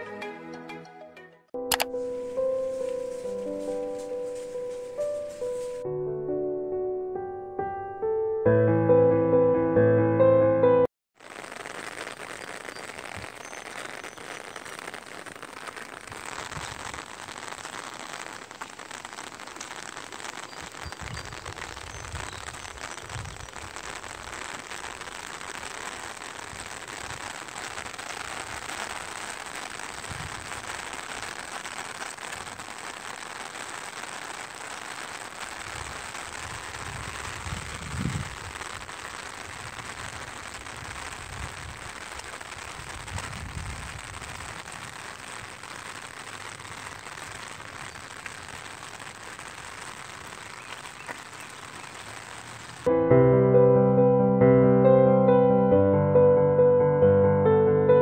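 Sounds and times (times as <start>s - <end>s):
rain falling: 1.7s - 5.8s, 11.2s - 52.9s.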